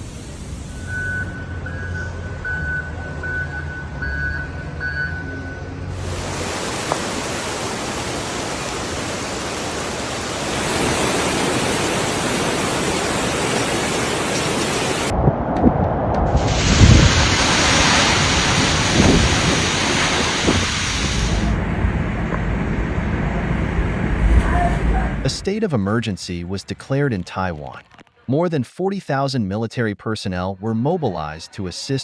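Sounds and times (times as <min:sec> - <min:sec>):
rain and wind rushing: 0:05.9 - 0:25.6
low gusty rumbles: 0:14.9 - 0:25.6.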